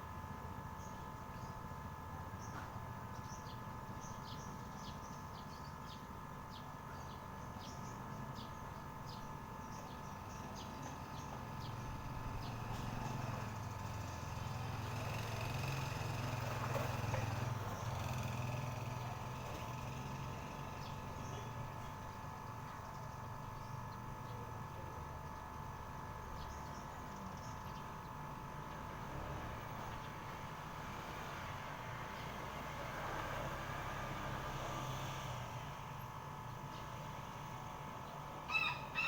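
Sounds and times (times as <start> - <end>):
small birds chirping: 2.3 - 15.8
passing motor traffic: 11.3 - 22.2, 28.6 - 39.0.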